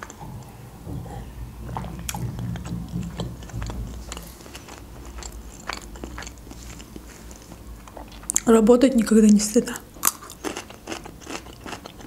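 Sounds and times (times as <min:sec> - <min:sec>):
person chewing and biting food: 0:01.8 - 0:08.5, 0:10.0 - 0:12.0.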